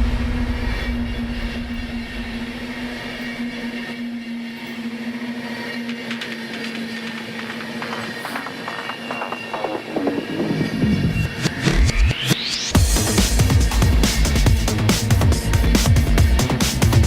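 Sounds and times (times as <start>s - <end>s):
train rumbling on track: 0.0s - 12.2s
steady hum: 0.0s - 17.0s.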